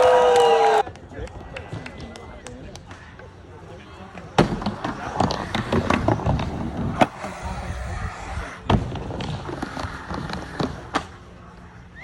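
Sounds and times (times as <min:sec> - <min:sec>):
skateboard rolling: 0:01.3 - 0:12.0
skateboard clacking on ground: 0:04.0 - 0:07.4.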